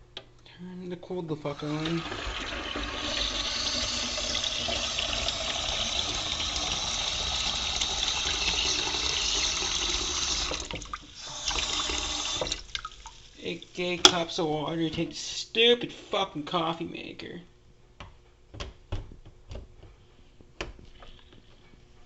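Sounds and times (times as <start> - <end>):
tap running water: 1.4 - 15.1.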